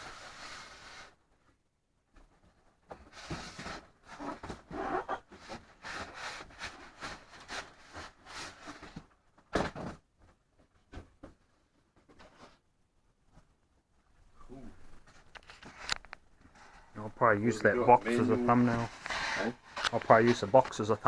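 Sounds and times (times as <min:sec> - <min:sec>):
packaging rustling and scraping: 0:03.0 - 0:09.2, 0:18.1 - 0:21.0.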